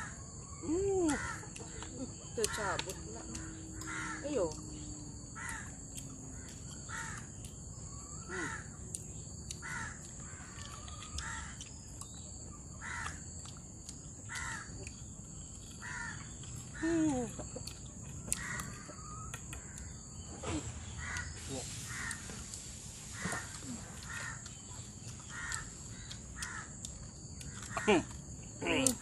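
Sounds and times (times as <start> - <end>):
high-pitched insect drone: 19.6 - 26.7
bird calling harshly: 20.6 - 22.4.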